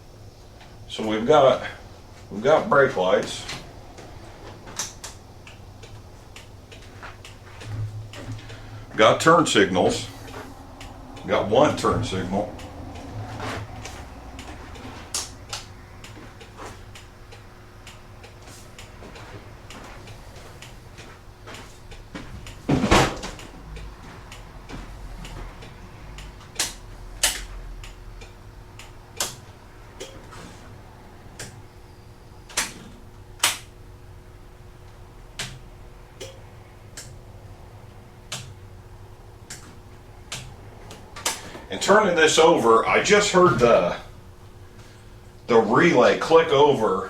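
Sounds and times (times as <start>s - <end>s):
faint steady hum: 0.0s - 47.0s
clicks and knocks of motorcycle work: 13.4s - 30.7s, 32.5s - 33.7s, 35.4s - 37.2s, 38.3s - 38.6s, 39.4s - 41.6s.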